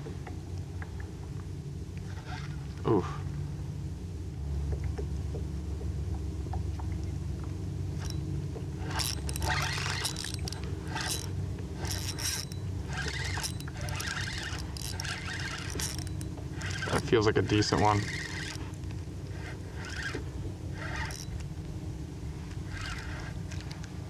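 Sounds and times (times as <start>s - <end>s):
fishing reel being cranked: 8.0s - 21.6s, 22.5s - 23.8s
irregular scraping: 8.8s - 21.4s.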